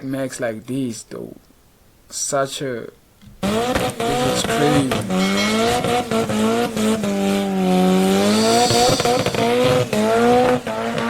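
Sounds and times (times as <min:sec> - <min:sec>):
engine crackles: 0:03.4 - 0:11.0
sports car engine revving: 0:03.4 - 0:11.0.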